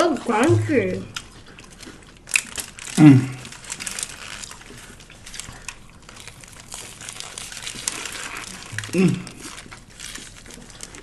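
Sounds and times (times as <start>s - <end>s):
chewing and crunching: 0.0s - 11.0s
wrapper paper crinkling: 0.1s - 11.0s
person humming mm: 3.0s - 3.4s, 8.8s - 9.4s.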